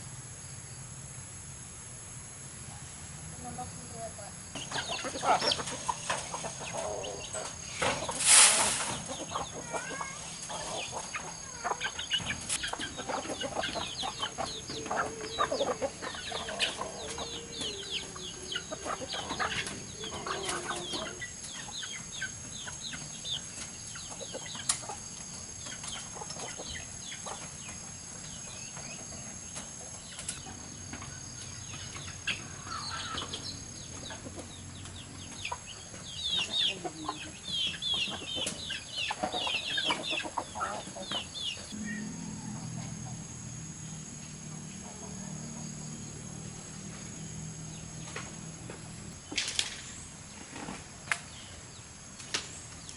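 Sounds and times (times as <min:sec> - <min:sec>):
chickens clucking: 0:04.4 - 0:46.0.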